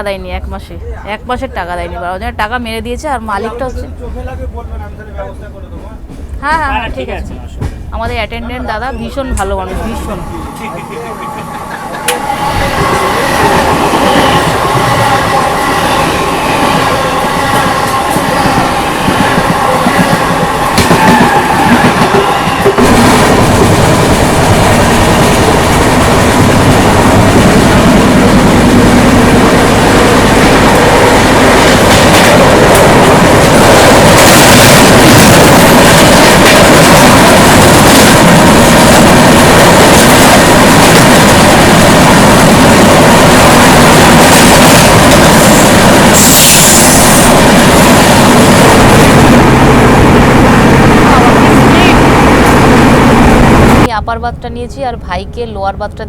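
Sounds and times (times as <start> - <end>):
train rushing rumble: 0.0 - 56.0
steady whine: 8.7 - 39.0, 43.7 - 53.9.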